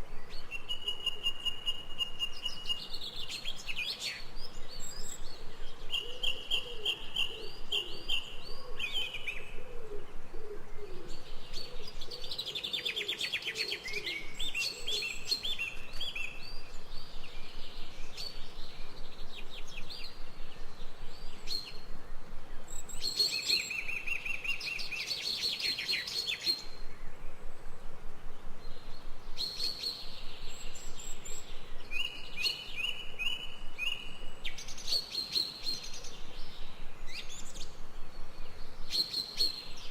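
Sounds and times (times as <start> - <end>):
birds chirping and singing: 0.0 - 27.4, 28.6 - 39.9.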